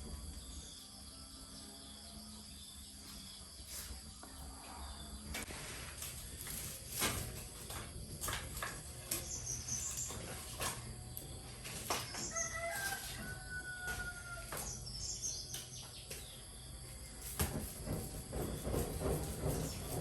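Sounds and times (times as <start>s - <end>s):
small birds chirping: 8.9s - 12.8s, 14.6s - 17.3s
rooster crowing: 12.2s - 14.8s.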